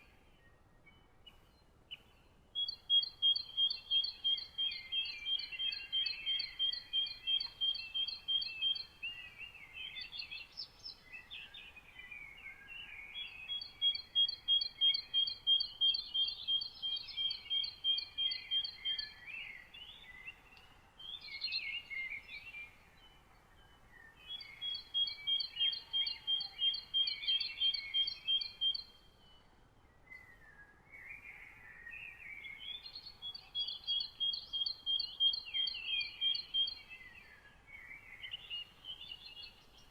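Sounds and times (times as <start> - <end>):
birds chirping: 1.2 - 29.1.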